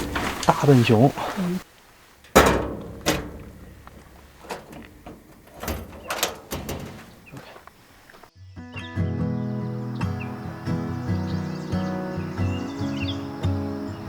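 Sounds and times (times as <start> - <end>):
door knocks and clunks: 2.3 - 8.1
music: 8.3 - 14.0.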